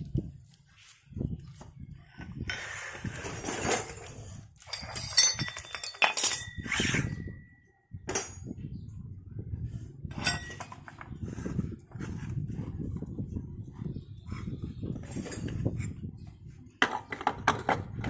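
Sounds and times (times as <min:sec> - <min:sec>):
metal tools clinking: 0:02.5 - 0:07.5, 0:10.1 - 0:11.1, 0:15.0 - 0:15.6.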